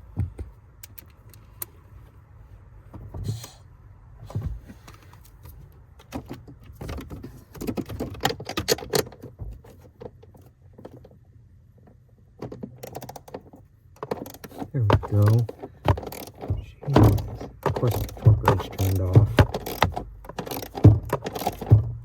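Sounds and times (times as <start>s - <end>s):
socket ratchet clicking: 14.0s - 21.9s.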